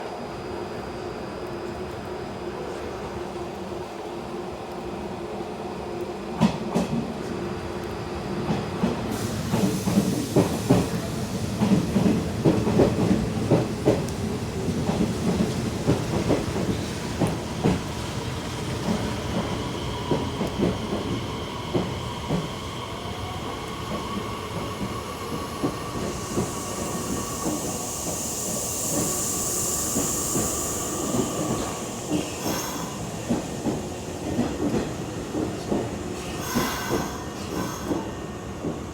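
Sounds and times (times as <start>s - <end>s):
high hissing: 24.2s - 34.3s, 36.0s - 38.4s.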